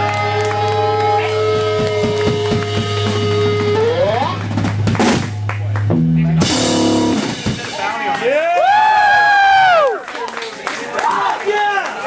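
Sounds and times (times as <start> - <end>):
sustained bending guitar tone: 0.0 - 7.4
bass guitar notes: 0.0 - 8.0
drum kit hits: 1.6 - 8.4
cymbal crash: 6.4 - 8.0.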